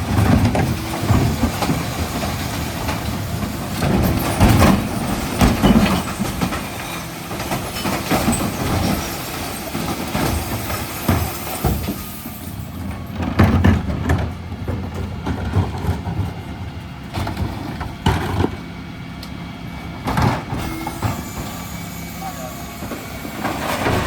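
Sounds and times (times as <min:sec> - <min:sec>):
clunks and clatters of bins: 0:00.0 - 0:24.0
refuse truck engine running: 0:00.0 - 0:24.0.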